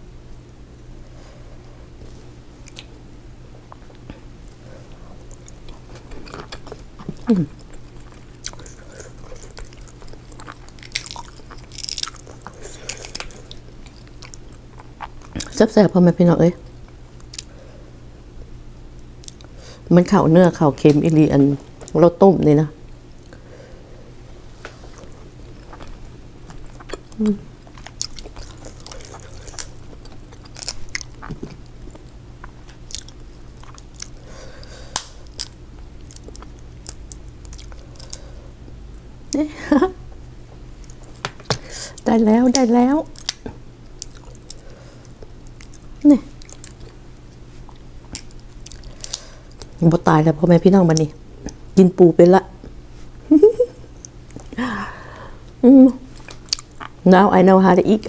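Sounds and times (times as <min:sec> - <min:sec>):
chewing seafood: 0:02.1 - 0:02.9, 0:03.7 - 0:15.6, 0:24.2 - 0:38.5, 0:43.1 - 0:49.8, 0:55.4 - 0:57.0.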